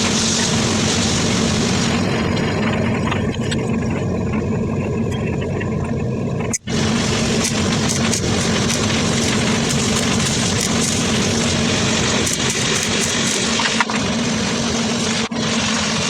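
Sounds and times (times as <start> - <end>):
steady low hum: 0.0 - 16.0
welding arc crackling: 6.4 - 16.0.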